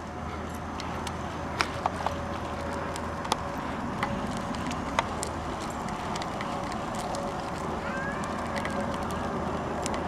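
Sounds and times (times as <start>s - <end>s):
bicycle clicks and rattles: 0.0s - 10.0s
bicycle rolling noise: 0.0s - 10.0s.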